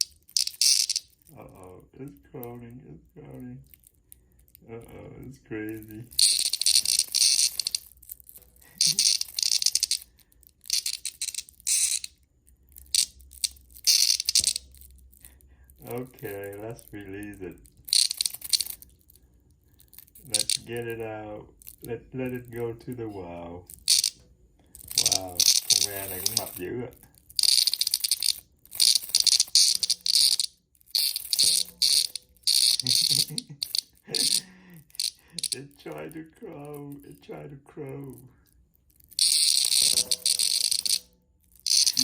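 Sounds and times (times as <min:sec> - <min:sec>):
cicada buzzing: 0:00.0 - 0:01.2, 0:06.2 - 0:08.0, 0:08.7 - 0:10.1, 0:10.7 - 0:12.1, 0:12.9 - 0:14.6, 0:17.9 - 0:18.8, 0:20.3 - 0:20.7, 0:23.7 - 0:24.2, 0:24.8 - 0:26.6, 0:27.4 - 0:35.6, 0:39.1 - 0:41.0, 0:41.6 - 0:42.0.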